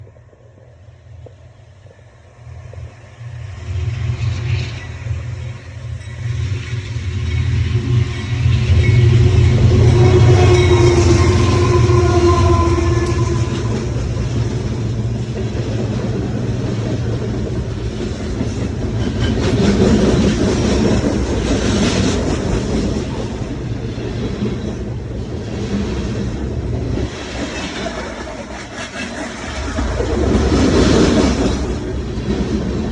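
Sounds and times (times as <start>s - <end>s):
train rumbling by: 0.0s - 32.9s
steady ringing tone: 4.8s - 12.3s.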